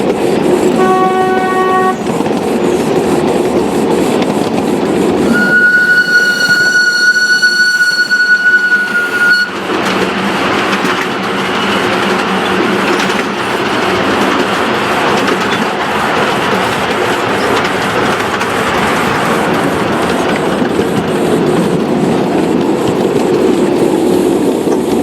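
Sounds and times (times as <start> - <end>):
train clattering and rushing: 0.0 - 25.0
train horn blast: 0.8 - 2.0, 5.3 - 9.6.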